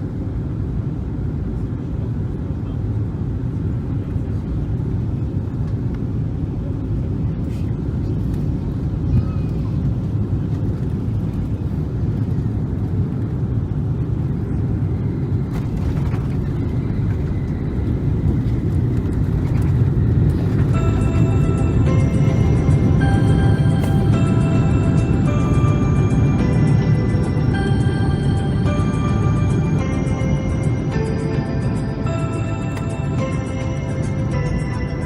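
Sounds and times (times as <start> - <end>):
airliner cabin engine roar: 0.0 - 35.0
music: 20.7 - 35.0.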